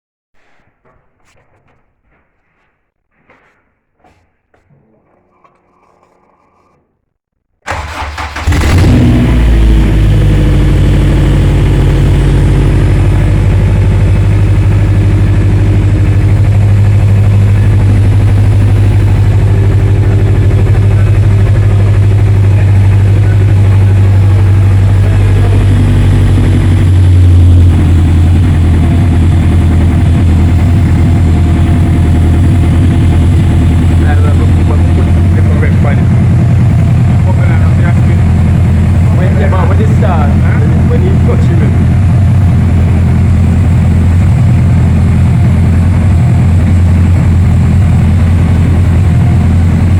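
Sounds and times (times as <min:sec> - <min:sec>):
car engine starting and running: 0:07.6 - 0:49.9.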